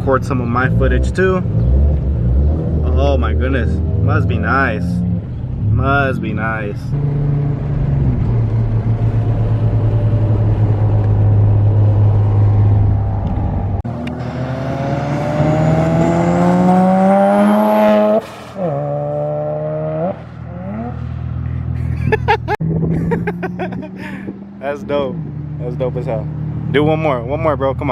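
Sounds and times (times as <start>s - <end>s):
car engine accelerating: 0.0s - 27.9s.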